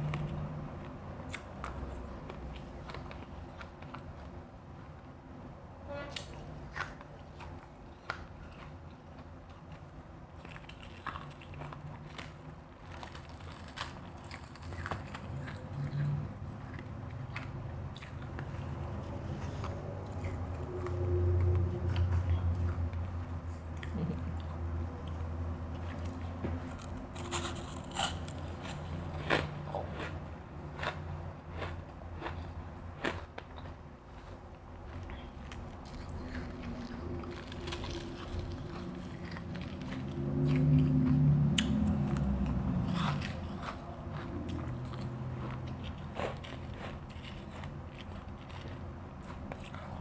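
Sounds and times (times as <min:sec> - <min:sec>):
low steady hum: 0:00.0 - 0:50.0
ice being chewed: 0:06.8 - 0:22.1, 0:25.1 - 0:50.0
low hum: 0:14.6 - 0:31.3.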